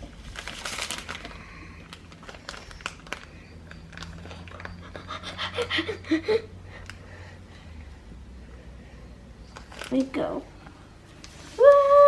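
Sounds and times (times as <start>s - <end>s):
plastic packet crinkling: 0.0s - 4.9s, 9.5s - 10.3s
child panting: 5.0s - 7.4s.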